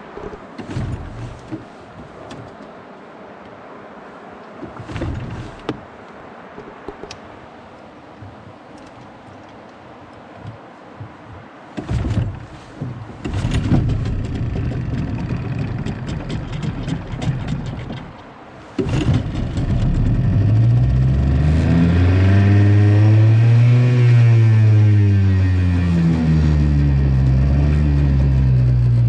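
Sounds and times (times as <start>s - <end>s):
outboard motor starting and revving: 0.0s - 1.8s, 4.6s - 5.8s, 11.8s - 18.2s, 18.8s - 29.0s.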